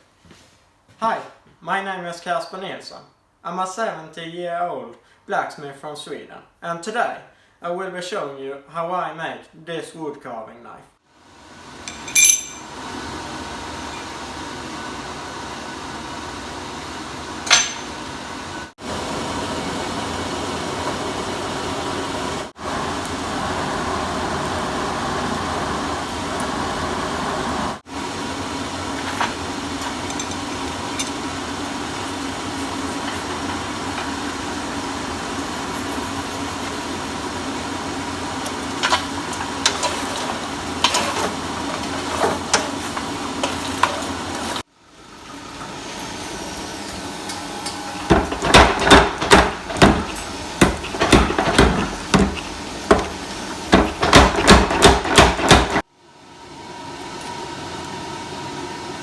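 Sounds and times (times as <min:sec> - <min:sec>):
mechanical whirring hum: 0:11.2 - 0:59.0
ringing metallic clink: 0:11.9 - 0:12.6.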